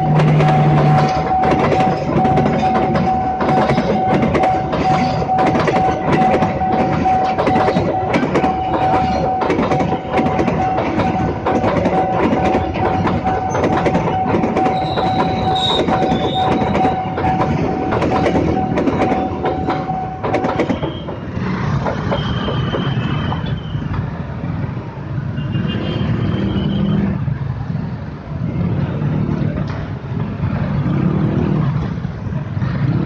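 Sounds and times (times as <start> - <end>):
steady high tone: 0.0 - 21.2
train wheels clacking: 0.0 - 25.2.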